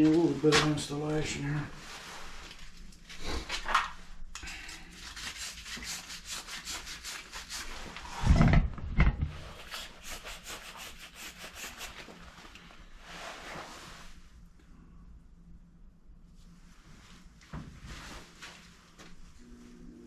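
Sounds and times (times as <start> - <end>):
rapid rubbing strokes: 4.8 - 8.1, 9.6 - 12.4.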